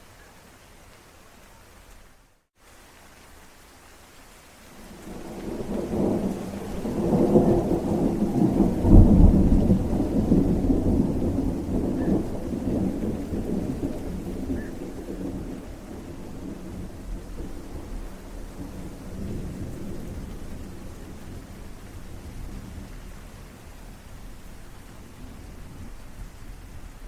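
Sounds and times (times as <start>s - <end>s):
steady rain: 0.0s - 27.0s
rolling thunder: 5.0s - 24.4s.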